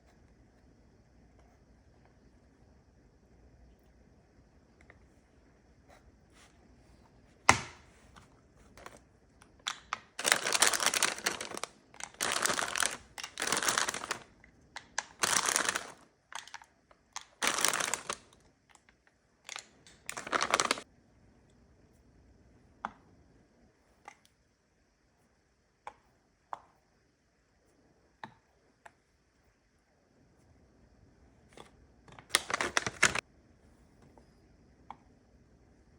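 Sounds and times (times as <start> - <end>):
plastic packaging crinkling: 8.7 - 9.0, 9.6 - 18.9, 19.5 - 20.8, 32.2 - 33.2.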